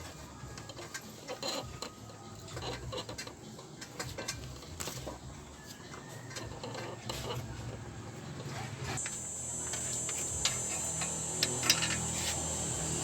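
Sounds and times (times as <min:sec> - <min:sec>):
steady low hum: 0:08.9 - 0:13.0
hand tools clinking on metal: 0:09.0 - 0:12.4.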